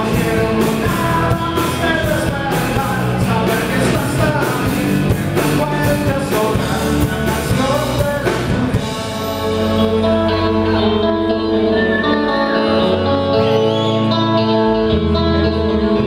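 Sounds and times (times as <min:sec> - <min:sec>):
drums and cymbals: 0:00.0 - 0:09.7
person singing: 0:00.0 - 0:16.0
rock band playing: 0:00.0 - 0:16.0.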